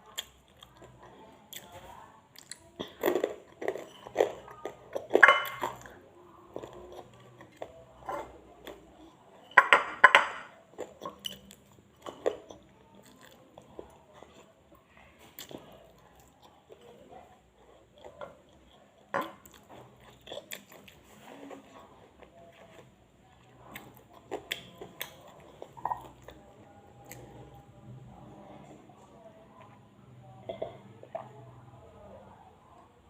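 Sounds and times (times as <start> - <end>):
crunchy chewing: 0.0 - 9.6, 10.5 - 27.8
dishes clinking: 5.1 - 5.8.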